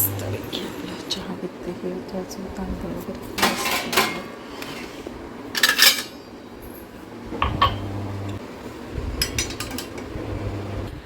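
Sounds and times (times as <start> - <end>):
containers and dishes clattering: 3.4 - 6.2, 9.2 - 10.1.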